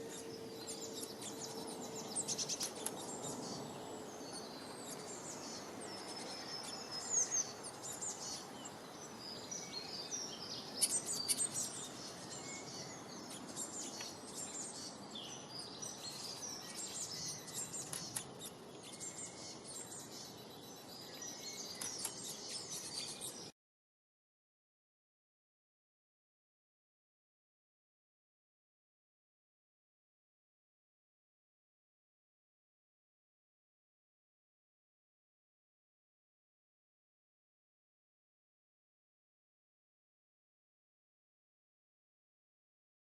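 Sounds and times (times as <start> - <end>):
outdoor ambience hiss: 0.0 - 23.5
small birds chirping: 0.0 - 23.5.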